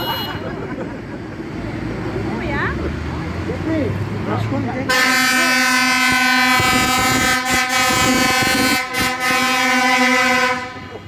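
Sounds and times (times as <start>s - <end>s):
vehicle horn long blast: 0.0s - 0.6s, 4.9s - 11.0s.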